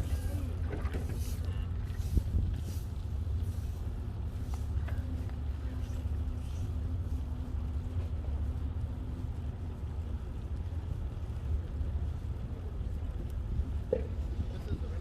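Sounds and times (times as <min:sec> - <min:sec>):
faint steady hum: 0:00.0 - 0:15.0
wind buffeting microphone: 0:00.0 - 0:15.0.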